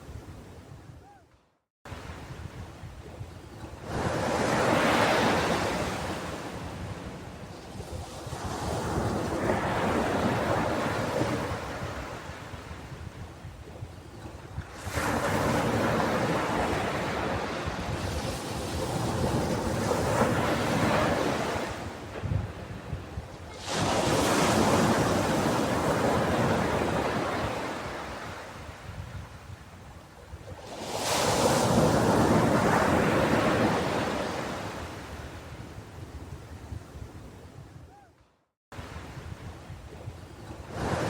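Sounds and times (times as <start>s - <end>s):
waves breaking on beach: 3.6s - 12.9s, 14.2s - 29.0s, 30.6s - 35.6s, 38.8s - 41.0s.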